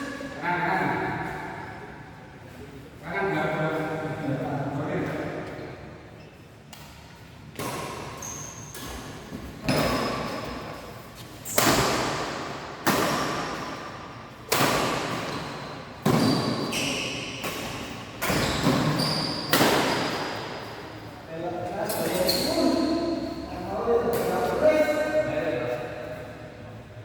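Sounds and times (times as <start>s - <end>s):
short high squeaks: 8.2s - 8.9s, 18.3s - 19.6s
racket striking shuttlecock: 11.5s - 16.2s.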